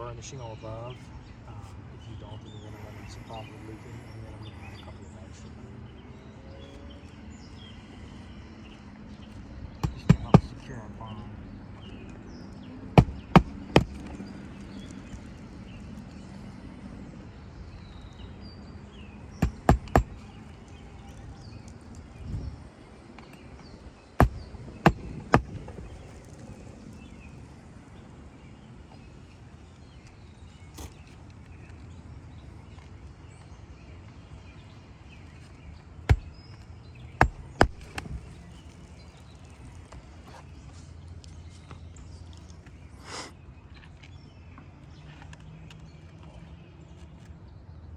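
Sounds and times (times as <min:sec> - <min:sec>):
hammering nails into roof shingles: 0:09.7 - 0:10.7, 0:12.8 - 0:15.4, 0:19.2 - 0:22.0, 0:24.1 - 0:26.5, 0:36.1 - 0:38.4.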